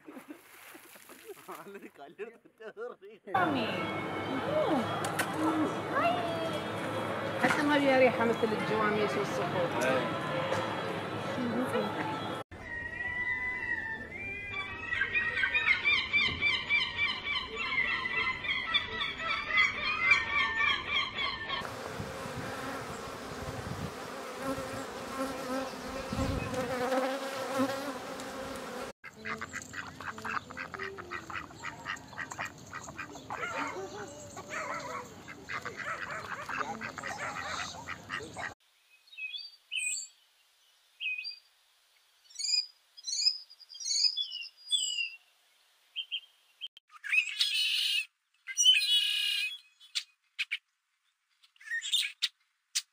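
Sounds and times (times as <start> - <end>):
ducks quacking rapidly: 29.0 - 33.8, 34.9 - 38.6
sparrow chirping: 42.3 - 45.2.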